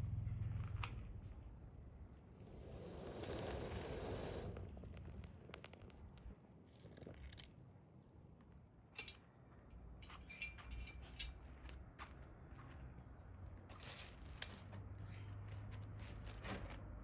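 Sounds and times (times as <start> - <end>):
ember fire crackling: 1.7 - 8.8.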